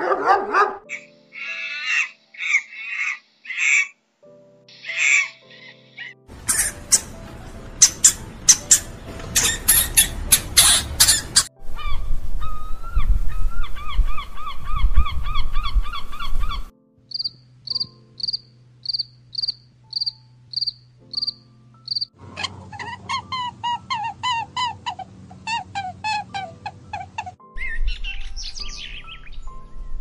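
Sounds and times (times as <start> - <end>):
fast chirping calls: 4.7 - 7.2, 7.8 - 12.0, 13.7 - 29.0
insect chirping: 17.1 - 22.1.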